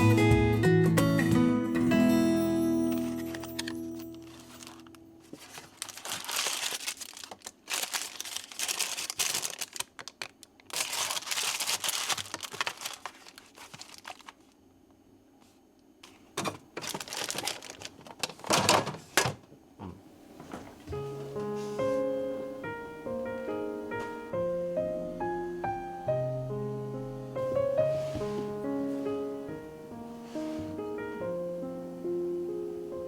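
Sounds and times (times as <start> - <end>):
crinkly packaging rustling: 2.8 - 14.6, 16.0 - 18.9.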